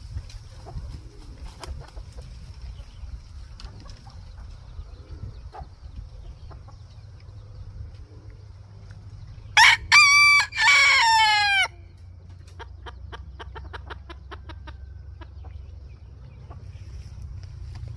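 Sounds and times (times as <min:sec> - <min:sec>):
rooster crowing: 0:09.6 - 0:11.8.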